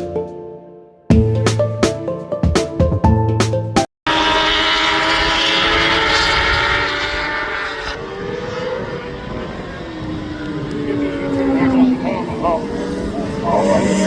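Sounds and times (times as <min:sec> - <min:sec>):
music: 0:00.0 - 0:03.9
racing motorcycle engines: 0:04.1 - 0:14.0.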